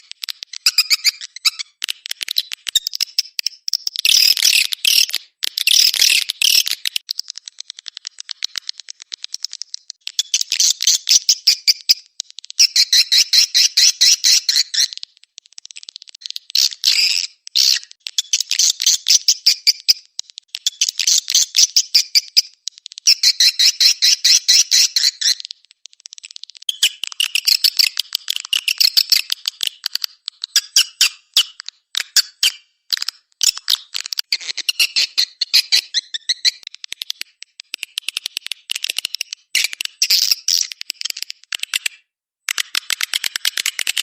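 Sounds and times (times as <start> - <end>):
bird twittering chirps and clicks: 0.0 - 44.0.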